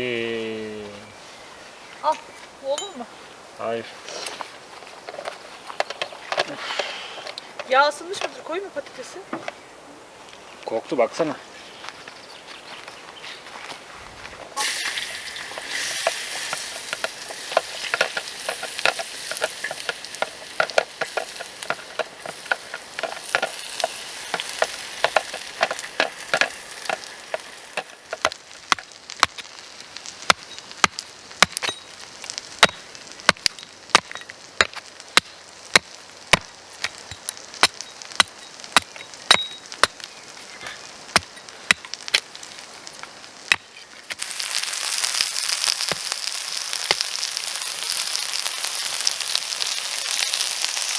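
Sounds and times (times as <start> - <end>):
potatoes sizzling in hot oil: 14.5 - 50.9
spitting oil pops and crackles: 14.5 - 50.9.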